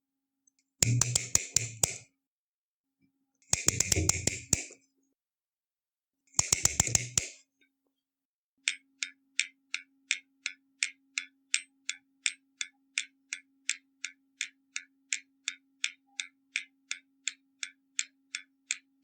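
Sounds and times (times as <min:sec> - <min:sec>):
bursts of rapid clicking: 0:00.8 - 0:02.0, 0:03.5 - 0:04.8, 0:06.4 - 0:07.4.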